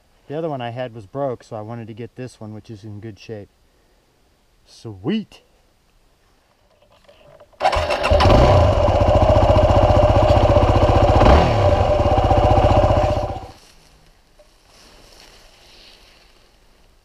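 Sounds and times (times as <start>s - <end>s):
dirt bike engine running: 7.6s - 13.6s.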